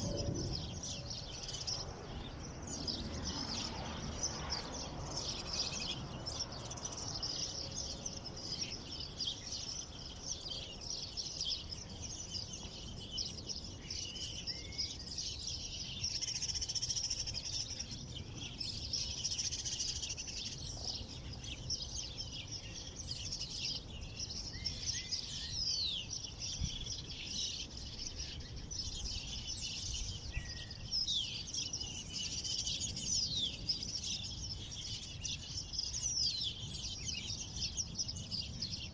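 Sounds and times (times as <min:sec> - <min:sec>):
low rumble: 0:00.0 - 0:01.4
small birds chirping: 0:00.0 - 0:38.9.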